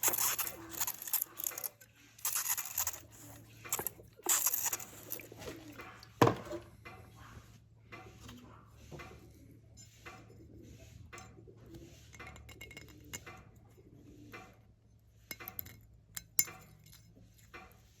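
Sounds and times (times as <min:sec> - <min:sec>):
metal tools clinking: 0:00.0 - 0:05.3.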